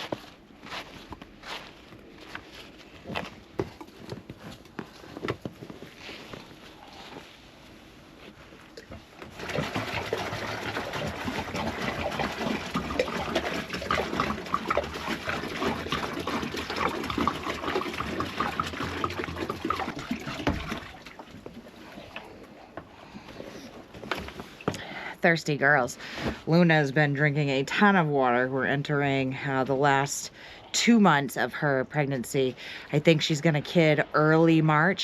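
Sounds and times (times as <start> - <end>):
water pouring into a bucket: 9.2 - 22.2.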